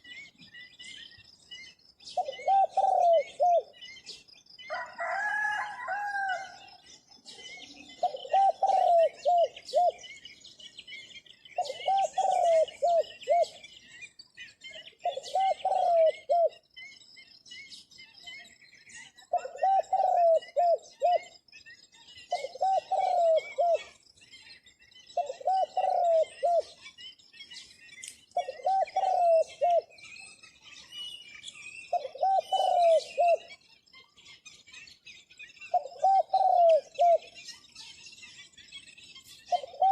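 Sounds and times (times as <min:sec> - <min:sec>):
small birds chirping faintly: 0:00.0 - 0:39.9
dove cooing: 0:02.1 - 0:03.8, 0:07.7 - 0:10.0, 0:11.6 - 0:13.6, 0:15.0 - 0:16.6, 0:19.3 - 0:21.3, 0:22.3 - 0:24.0, 0:25.2 - 0:26.8, 0:28.4 - 0:29.9, 0:31.9 - 0:33.5, 0:35.7 - 0:37.4, 0:39.5 - 0:39.9.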